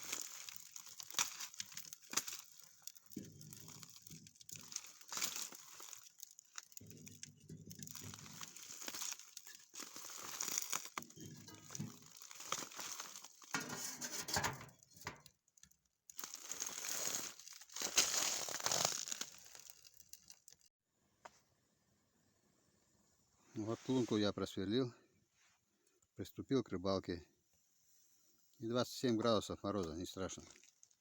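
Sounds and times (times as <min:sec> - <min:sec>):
crinkling and crunching handling: 0:00.0 - 0:20.7, 0:29.2 - 0:31.0.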